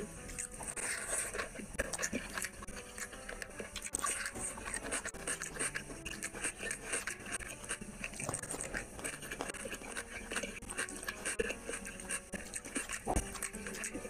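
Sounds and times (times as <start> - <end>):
wet chewing mouth clicks: 0.0 - 14.0.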